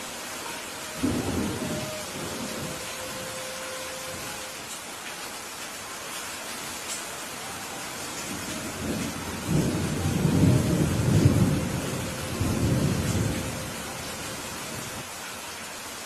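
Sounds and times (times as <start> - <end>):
steady rain: 0.0 - 16.0
thunder rumbling: 1.0 - 4.4, 8.3 - 15.0.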